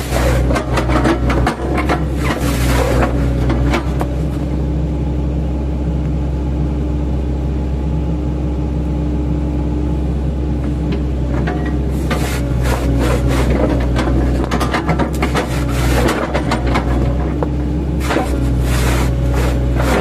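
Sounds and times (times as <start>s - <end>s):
bucket crunching through wood: 0.0s - 4.1s, 18.0s - 20.0s
diesel excavator engine running: 0.0s - 20.0s.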